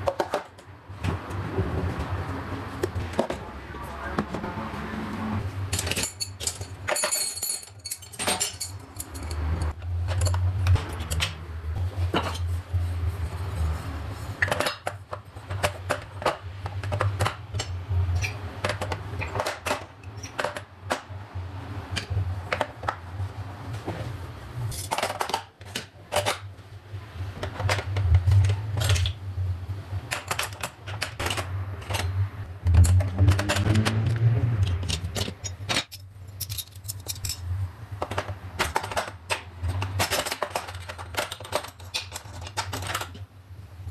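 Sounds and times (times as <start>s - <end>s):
utensils clinking: 5.7s - 11.3s, 34.7s - 37.4s.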